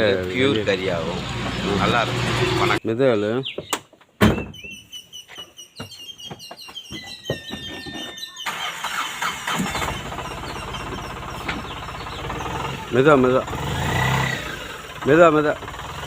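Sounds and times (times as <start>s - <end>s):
engine running: 0.1s - 2.8s, 8.6s - 16.0s.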